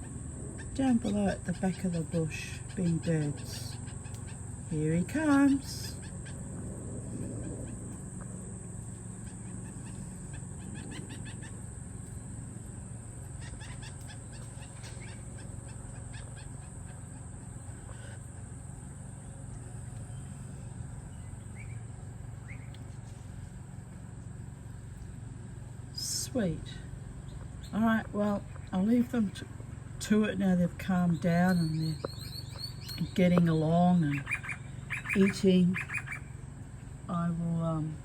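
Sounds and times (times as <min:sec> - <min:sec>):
faint bird calls: 0:00.0 - 0:12.3, 0:13.2 - 0:23.5, 0:31.1 - 0:36.5
insect drone: 0:00.0 - 0:38.0
low hum: 0:00.0 - 0:38.0.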